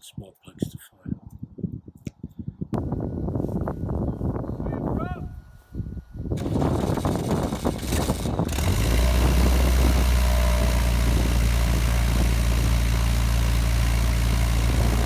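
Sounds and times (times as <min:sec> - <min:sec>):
aircraft engine ground-running: 0:06.1 - 0:15.0.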